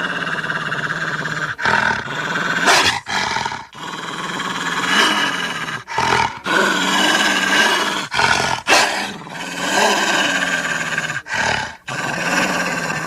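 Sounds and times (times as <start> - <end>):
wolf rasping snarl-like calls: 1.1 - 3.8.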